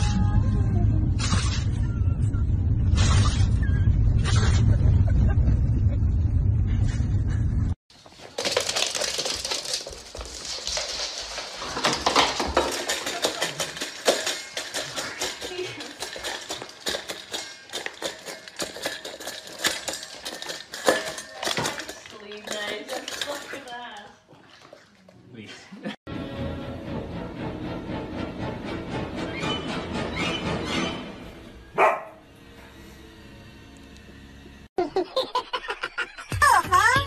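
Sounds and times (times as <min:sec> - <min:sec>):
dog clattering a metal bowl: 0:08.2 - 0:24.8.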